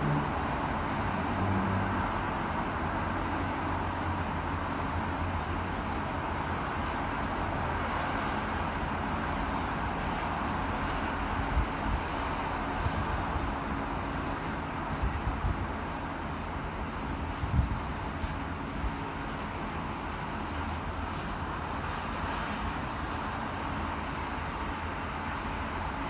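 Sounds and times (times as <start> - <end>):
city traffic roar: 0.0 - 26.0
wind buffeting microphone: 14.9 - 15.9, 16.8 - 19.2.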